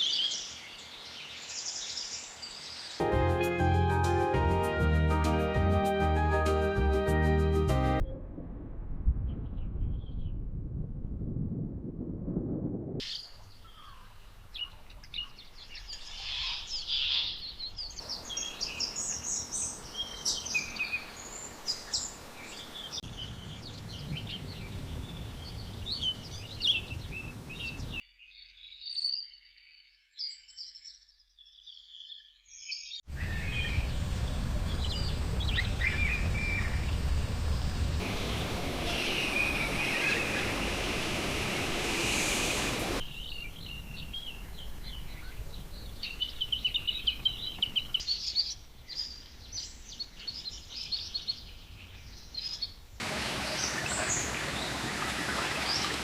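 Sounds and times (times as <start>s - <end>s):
wild birds chirping: 0.0s - 3.8s, 13.0s - 56.0s
steady rushing noise: 33.1s - 43.0s.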